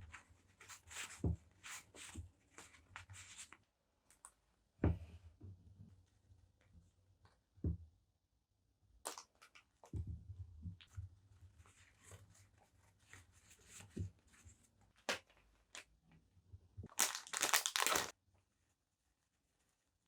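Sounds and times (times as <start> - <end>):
packaging crinkling: 16.9 - 18.1.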